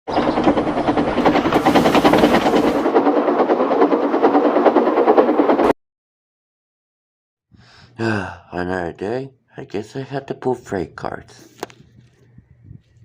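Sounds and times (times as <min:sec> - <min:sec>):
train clattering: 0:00.1 - 0:05.7.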